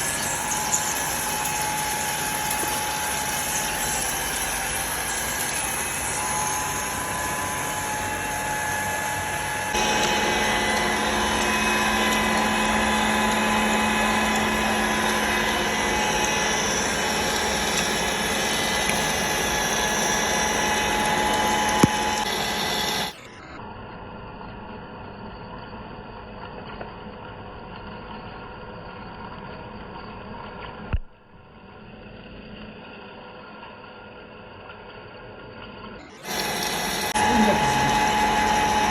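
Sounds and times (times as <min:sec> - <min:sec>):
metal lathe machining whir: 0:00.0 - 0:30.7, 0:31.6 - 0:38.9.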